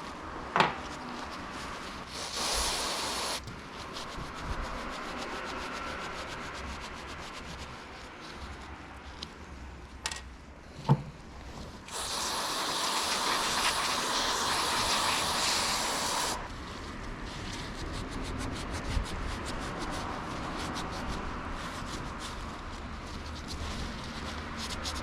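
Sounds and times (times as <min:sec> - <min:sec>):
rapid rubbing strokes: 0:00.9 - 0:09.6, 0:11.5 - 0:25.0
aerosol can spraying: 0:02.0 - 0:03.5, 0:11.8 - 0:16.5.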